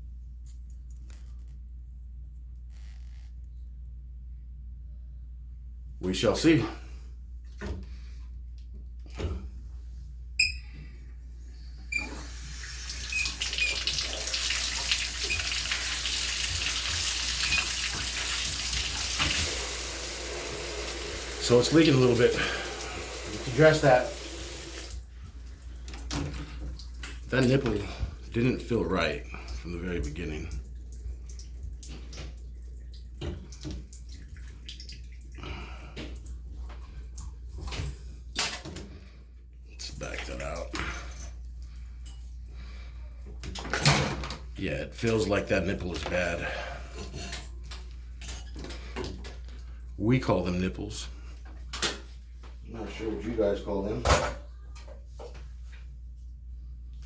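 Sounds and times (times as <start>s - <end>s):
shower head spraying water: 12.2s - 25.0s.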